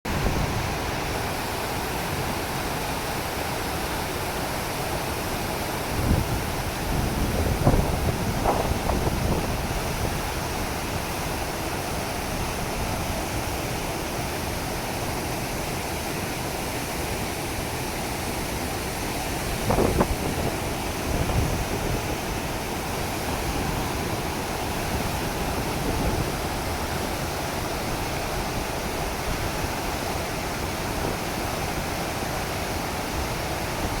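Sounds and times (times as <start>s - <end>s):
wind gusts on microphone: 5.2s - 14.7s, 17.6s - 34.0s.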